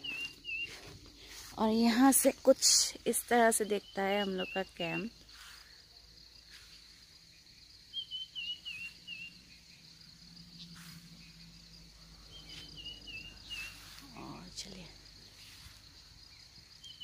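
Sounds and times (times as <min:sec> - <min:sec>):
bird warbling chirps: 0:00.0 - 0:00.8, 0:07.9 - 0:09.4, 0:12.3 - 0:14.8
insects droning: 0:00.0 - 0:17.0.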